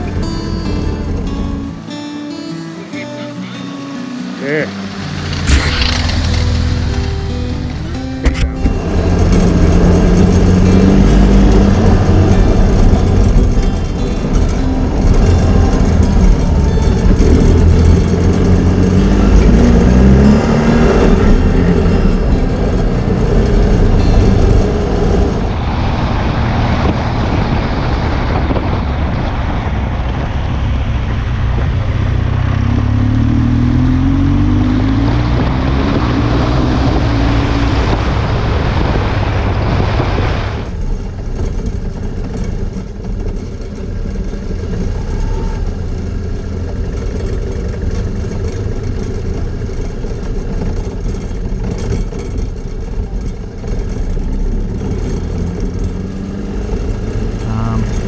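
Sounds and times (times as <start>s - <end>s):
motorcycle engine: 0.0s - 1.8s, 3.4s - 39.7s, 40.6s - 58.0s
wind rush while riding: 5.2s - 32.9s, 33.9s - 43.2s.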